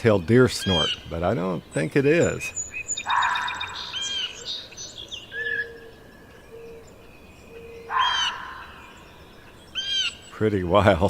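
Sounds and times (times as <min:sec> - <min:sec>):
fox giving hoarse call: 0:03.0 - 0:04.5, 0:07.8 - 0:09.0.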